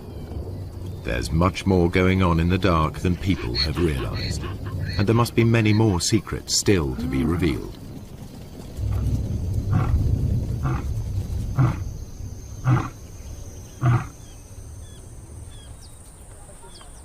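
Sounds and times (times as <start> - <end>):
lion roaring and grunting: 6.8 - 7.8, 8.9 - 11.9, 12.6 - 13.0, 13.7 - 14.2.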